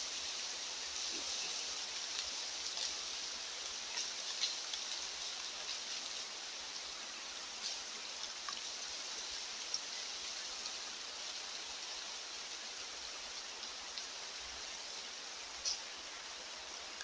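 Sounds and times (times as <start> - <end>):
outdoor ambient hiss: 0.0 - 17.0
faint short ticks: 15.6 - 15.8.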